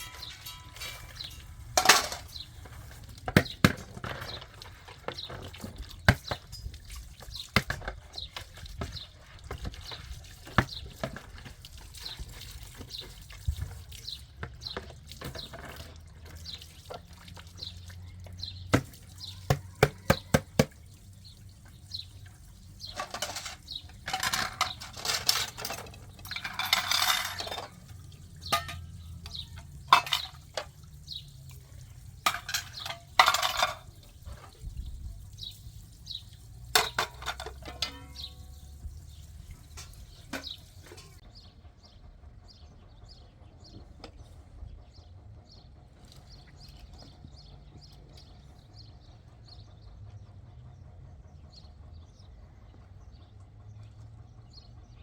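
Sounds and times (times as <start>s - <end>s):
dishes and pots clinking: 0.0s - 5.5s, 22.9s - 30.8s, 32.2s - 34.4s, 36.7s - 38.7s.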